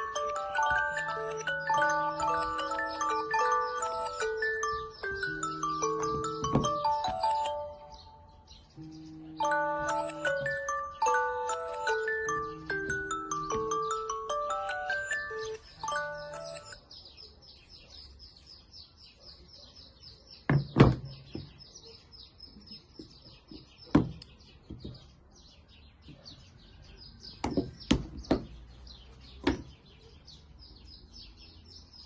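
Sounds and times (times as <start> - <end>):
birds chirping: 0.0 - 32.0
sharp knocks: 20.5 - 21.5, 27.4 - 28.6.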